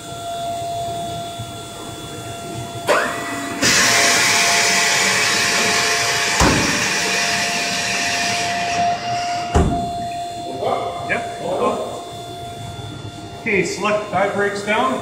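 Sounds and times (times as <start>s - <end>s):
constant hum: 0.0s - 15.0s
rising hydraulic whine: 0.0s - 15.0s
hissing hydraulic flow: 2.9s - 8.4s
hydraulic clunk: 2.9s - 10.3s
sharp thump: 6.4s - 6.9s.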